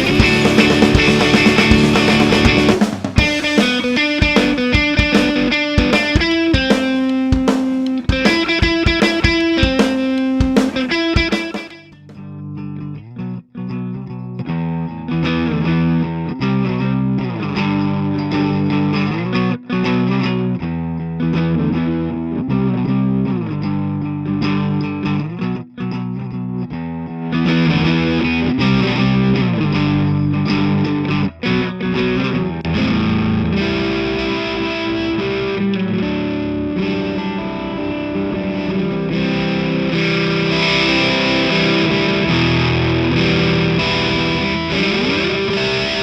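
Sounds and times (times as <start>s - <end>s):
overdriven electric guitar chords: 0.0s - 46.0s.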